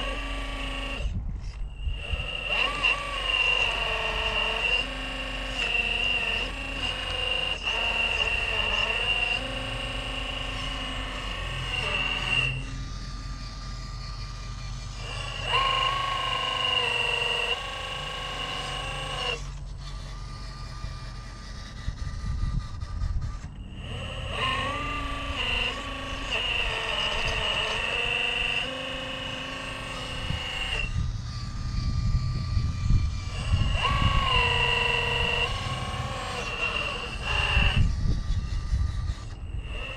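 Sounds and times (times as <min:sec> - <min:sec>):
wind rumble on microphone: 0:00.0 - 0:05.8, 0:20.1 - 0:28.8, 0:29.6 - 0:39.9
rc car electric motor whining: 0:00.0 - 0:39.9.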